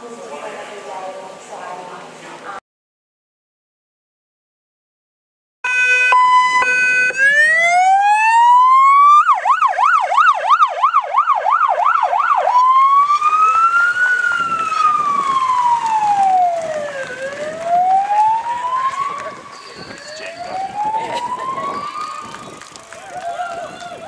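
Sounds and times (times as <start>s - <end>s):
police siren wailing and yelping: 5.7s - 24.0s.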